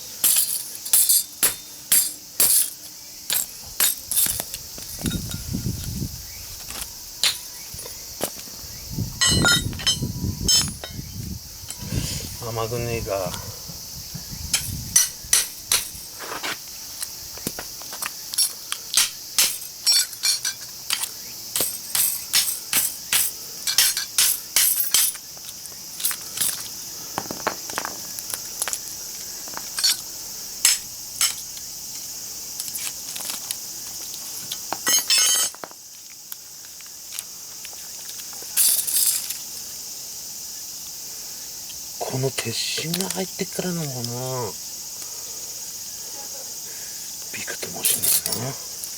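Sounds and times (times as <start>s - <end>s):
insect drone: 0.0s - 48.9s
metallic clinks and knocks: 0.2s - 5.5s, 6.7s - 8.0s, 9.2s - 11.1s, 14.5s - 16.2s, 18.4s - 25.3s, 29.8s - 30.0s, 30.6s - 31.5s, 34.8s - 35.7s, 47.8s - 48.5s.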